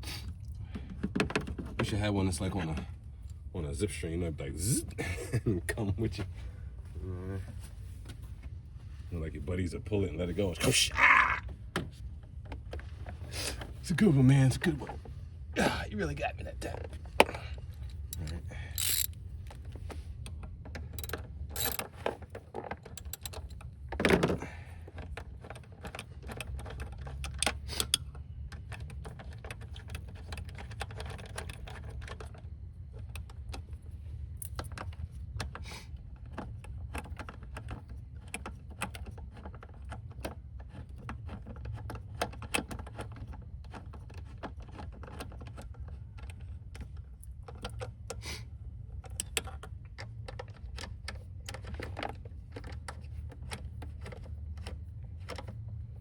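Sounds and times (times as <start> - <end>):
ratchet wrench clicking: 18.1 - 19.1, 21.0 - 21.9, 23.0 - 23.4
metal tool clinks: 18.2 - 19.1, 21.0 - 21.8.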